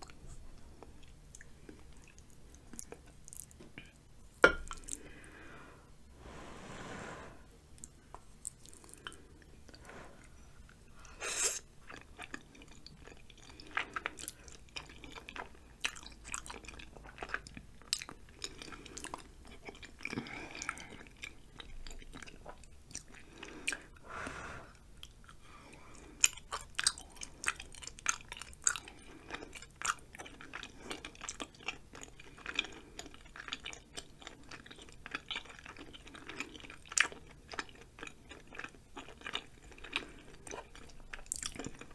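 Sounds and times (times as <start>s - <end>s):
close chewing of noodles: 10.6s - 24.2s, 24.8s - 41.9s.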